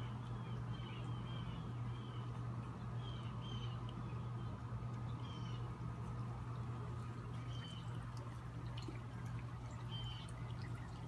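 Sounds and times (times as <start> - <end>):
small bird calling: 0.0 - 5.8, 7.0 - 8.3, 9.4 - 11.0
steady low hum: 0.0 - 11.0.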